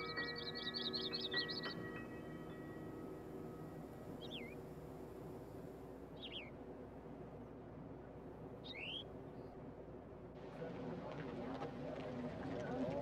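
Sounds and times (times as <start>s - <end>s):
chiming background music: 0.0s - 4.2s
bird whistled calls: 4.2s - 4.6s, 6.2s - 6.5s, 8.6s - 9.1s.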